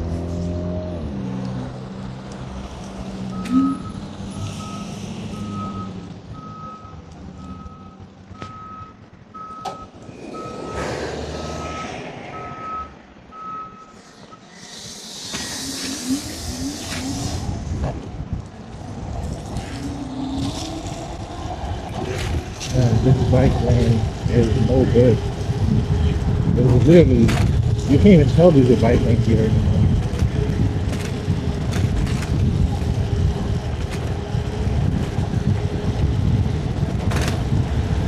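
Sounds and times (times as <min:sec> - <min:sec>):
traffic rumble: 0:00.0 - 0:38.0
reversing alarm beeping: 0:03.3 - 0:14.5
loud burst of hiss: 0:14.5 - 0:17.3.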